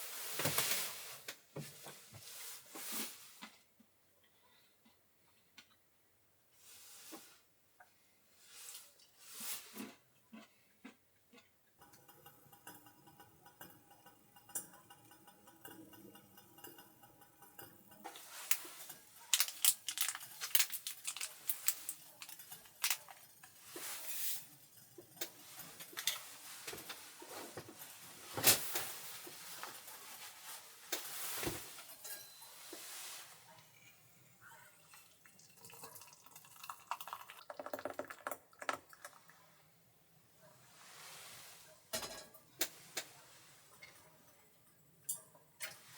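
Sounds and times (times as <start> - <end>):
dishes and utensils clinking: 11.8 - 34.2, 41.9 - 42.8.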